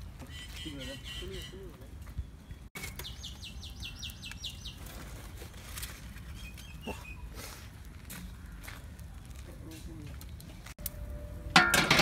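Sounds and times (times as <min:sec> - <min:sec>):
low outdoor background: 0:00.0 - 0:12.0
small bird singing: 0:00.2 - 0:05.5, 0:06.1 - 0:07.4.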